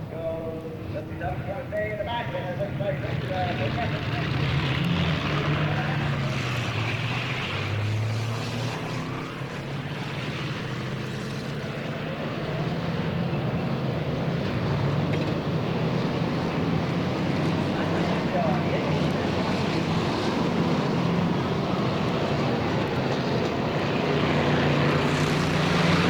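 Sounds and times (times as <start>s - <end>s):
race car engines droning: 0.0s - 26.0s.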